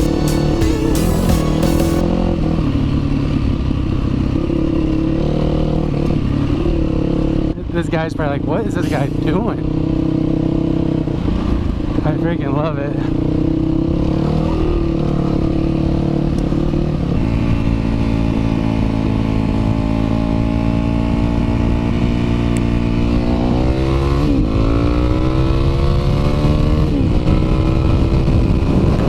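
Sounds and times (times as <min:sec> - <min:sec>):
motorcycle engine accelerating: 0:00.0 - 0:29.0
wind noise: 0:26.6 - 0:29.0.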